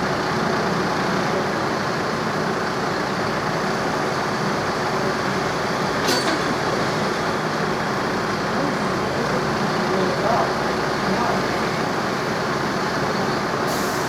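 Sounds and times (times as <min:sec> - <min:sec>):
sharp hiss: 0:13.7 - 0:14.0.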